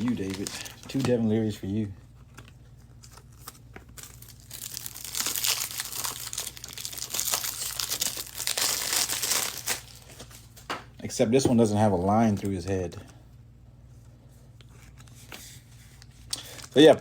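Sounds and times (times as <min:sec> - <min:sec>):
foil wrapper crinkling and tearing: 0:00.0 - 0:01.4, 0:03.0 - 0:10.4, 0:16.3 - 0:17.0.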